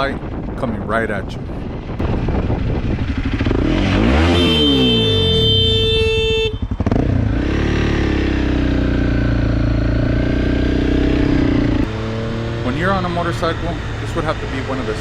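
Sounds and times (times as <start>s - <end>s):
motorcycle engine accelerating: 1.7s - 15.0s
horn blaring: 3.8s - 7.1s.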